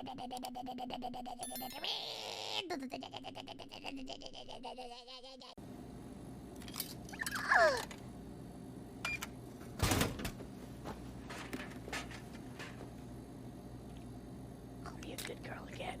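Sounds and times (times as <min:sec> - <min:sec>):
steady low hum: 0:05.6 - 0:16.0.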